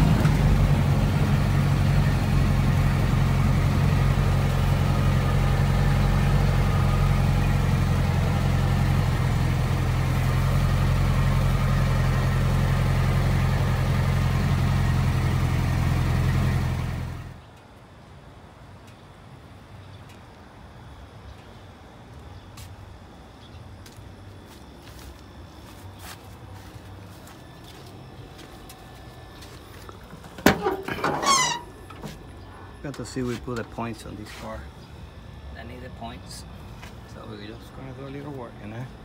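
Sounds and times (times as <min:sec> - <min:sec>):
car engine running steadily: 0:00.0 - 0:17.5.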